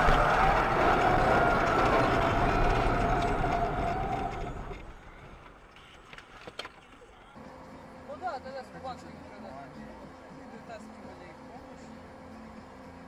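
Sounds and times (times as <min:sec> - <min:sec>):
loud vehicle noise with whine: 0:00.0 - 0:06.3, 0:07.3 - 0:13.0.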